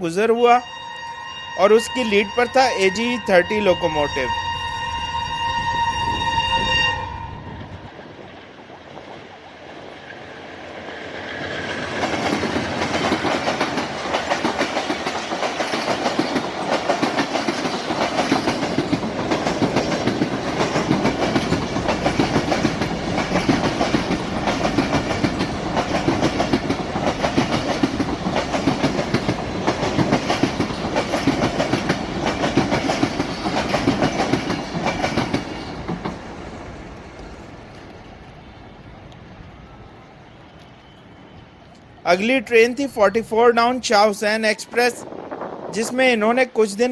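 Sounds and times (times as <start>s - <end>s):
train wheels clattering over rails: 10.8s - 37.4s.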